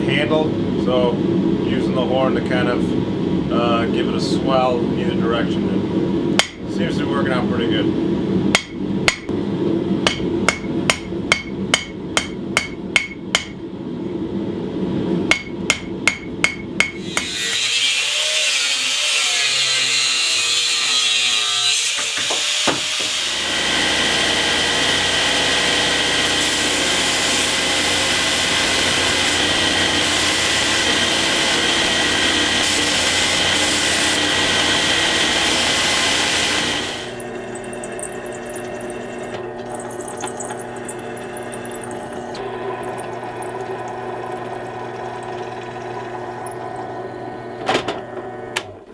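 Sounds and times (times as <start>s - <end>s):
hammer on hot steel: 6.4s - 6.6s, 8.5s - 9.4s, 10.0s - 13.6s, 15.3s - 17.5s
power tool running: 17.0s - 19.8s, 20.4s - 48.7s.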